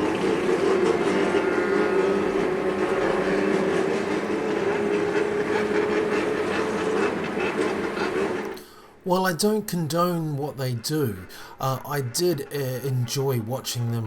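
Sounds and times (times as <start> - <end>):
motorcycle engines droning: 0.0 - 8.6.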